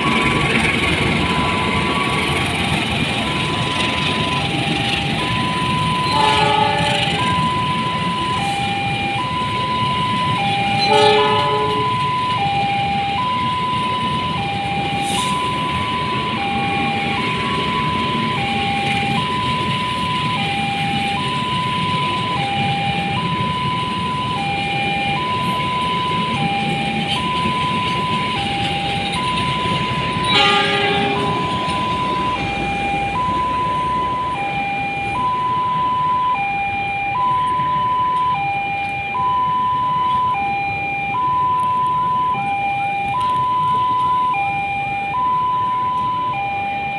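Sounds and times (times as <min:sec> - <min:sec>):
level crossing two-tone alarm: 0:00.0 - 0:46.9
traffic rumble: 0:00.0 - 0:46.9.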